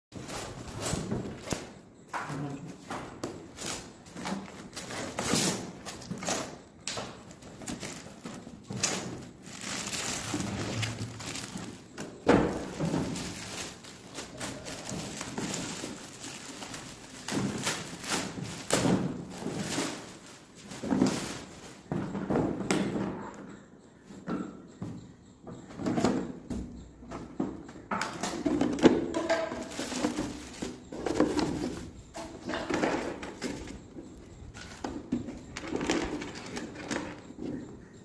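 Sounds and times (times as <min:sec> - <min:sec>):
packaging rustling: 0:07.2 - 0:21.8, 0:29.2 - 0:33.9.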